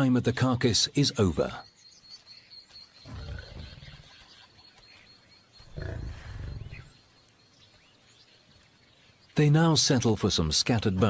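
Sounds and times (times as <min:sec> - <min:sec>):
lion growling: 0:03.0 - 0:04.2, 0:05.6 - 0:06.9.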